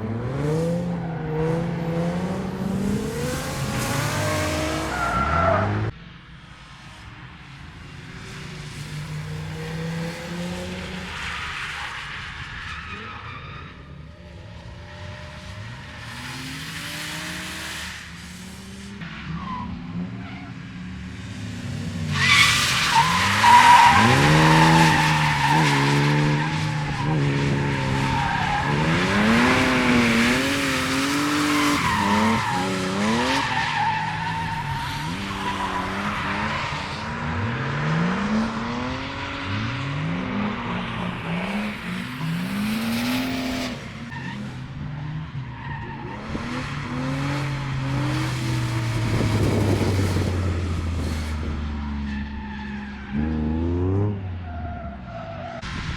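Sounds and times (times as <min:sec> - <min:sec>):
engine revving up and down: 0:23.3 - 0:33.5, 0:35.0 - 0:44.7, 0:46.1 - 0:51.8, 0:53.2 - 0:54.3.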